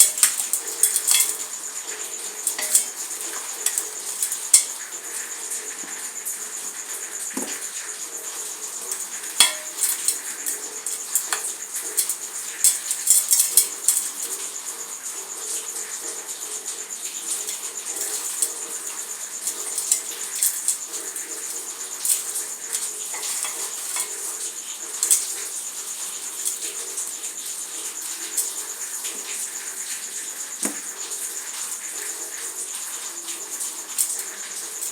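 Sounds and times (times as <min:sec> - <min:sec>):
dry material crackling apart: 0:00.0 - 0:01.6, 0:02.4 - 0:05.3, 0:08.9 - 0:14.5, 0:17.4 - 0:26.8.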